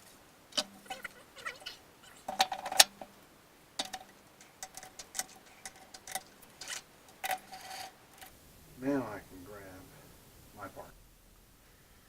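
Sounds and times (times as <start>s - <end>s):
metal clicks and clinks: 3.8s - 8.3s.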